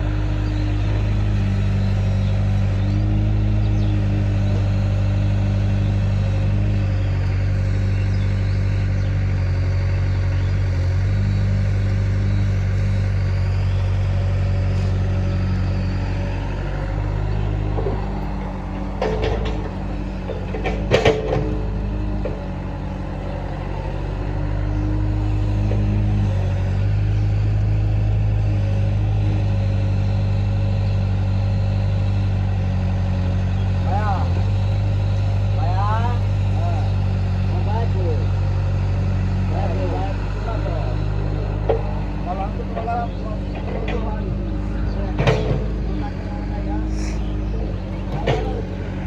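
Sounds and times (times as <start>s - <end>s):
heavy diesel engines running: 0.0s - 49.0s
sharp knocks and clanks: 19.0s - 22.4s, 45.1s - 45.8s, 48.0s - 48.8s.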